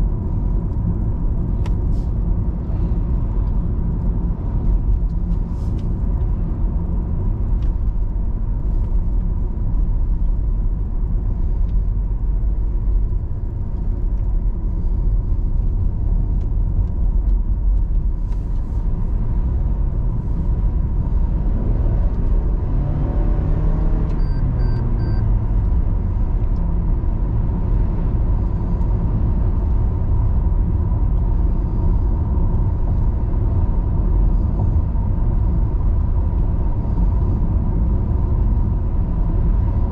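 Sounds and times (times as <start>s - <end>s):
car engine and tyre rumble: 0.0s - 39.9s
short faint high beeps: 24.2s - 25.2s.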